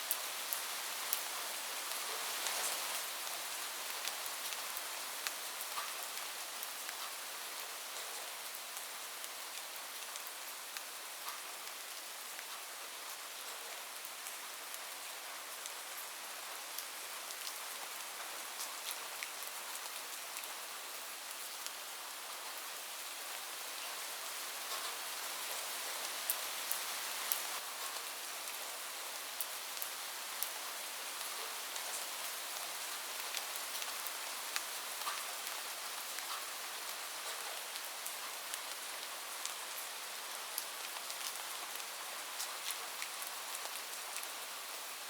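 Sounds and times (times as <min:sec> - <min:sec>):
rain falling on a roof: 0:00.0 - 0:45.0.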